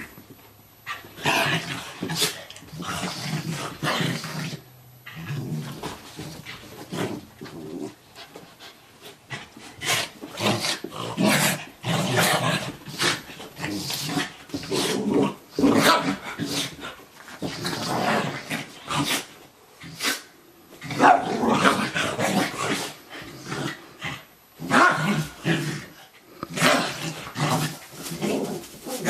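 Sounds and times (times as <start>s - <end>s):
dogs growling: 0.9s - 8.4s, 9.3s - 29.0s
dogs barking: 21.0s - 21.4s.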